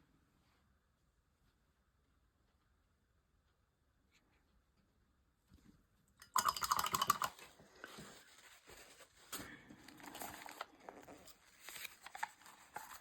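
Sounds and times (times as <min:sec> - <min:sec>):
rapid small clicks and rattling: 0:06.2 - 0:07.6
rustling and tapping: 0:06.4 - 0:13.0.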